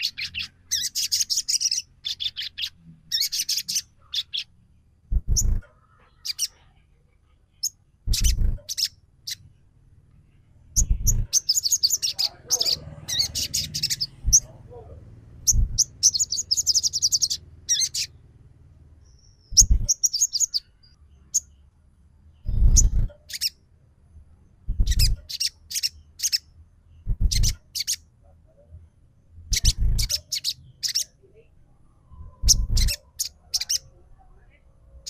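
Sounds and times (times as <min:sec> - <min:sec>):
bird chirping and trilling: 0:00.0 - 0:06.8, 0:07.5 - 0:09.6, 0:10.7 - 0:18.3, 0:19.0 - 0:21.6, 0:22.3 - 0:23.6, 0:24.7 - 0:28.1, 0:29.5 - 0:31.2, 0:32.1 - 0:34.0
dull low thud: 0:05.1 - 0:05.6, 0:15.5 - 0:15.8, 0:19.6 - 0:19.9.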